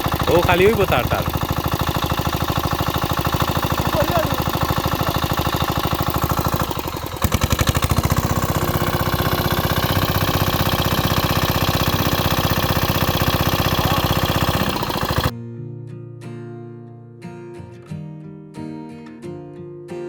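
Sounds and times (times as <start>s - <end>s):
diesel pump engine running: 0.0s - 15.3s.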